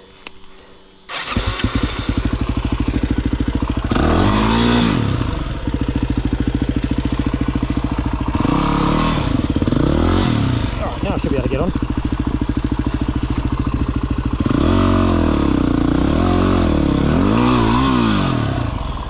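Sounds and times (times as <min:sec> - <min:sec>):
dirt bike engine revving: 0:01.1 - 0:19.0.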